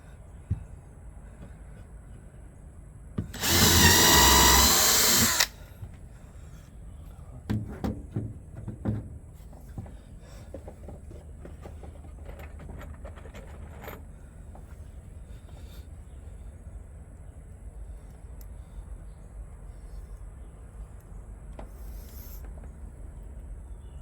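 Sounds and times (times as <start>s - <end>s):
power drill into wood: 3.3s - 5.6s
handling knocks and clicks: 7.5s - 14.8s.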